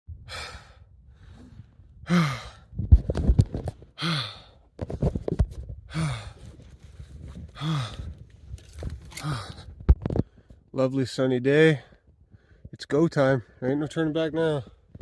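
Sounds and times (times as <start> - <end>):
man breathing hard: 0.2 - 2.8, 3.9 - 4.8, 5.9 - 10.7, 11.9 - 12.7
man sighing: 1.4 - 2.7, 9.1 - 9.7.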